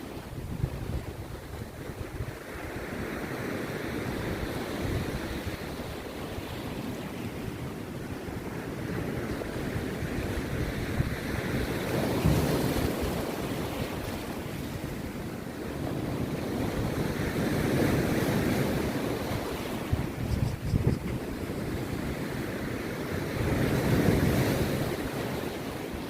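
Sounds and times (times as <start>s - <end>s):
sea surf breaking on beach: 0.0s - 26.0s.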